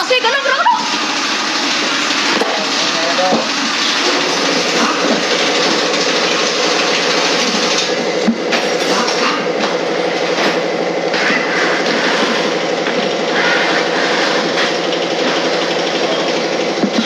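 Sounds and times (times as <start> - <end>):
mechanical running noise with rattle: 0.0 - 17.0.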